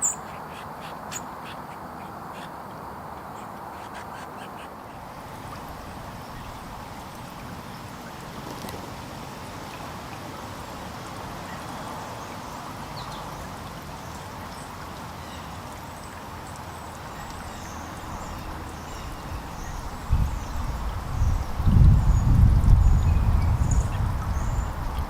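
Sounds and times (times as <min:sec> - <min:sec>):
small birds chirping: 0:00.0 - 0:07.9, 0:16.5 - 0:25.0
steady background hiss: 0:00.0 - 0:25.0.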